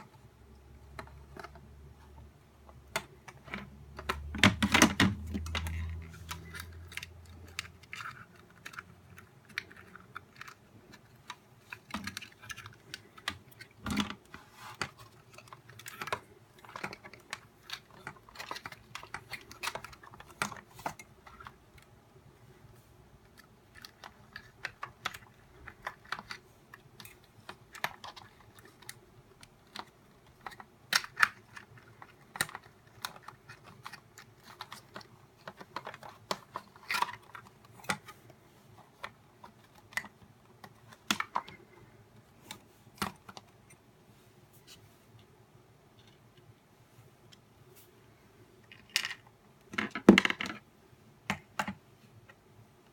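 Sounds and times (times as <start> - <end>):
plastic parts clicking: 2.7 - 22.0, 23.2 - 43.8.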